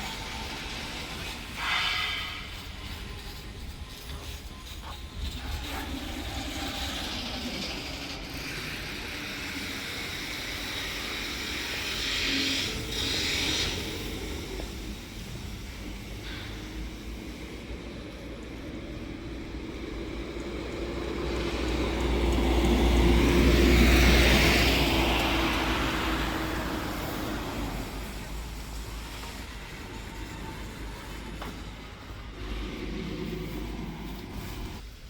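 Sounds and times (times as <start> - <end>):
heavy truck driving past: 12.5 - 34.9.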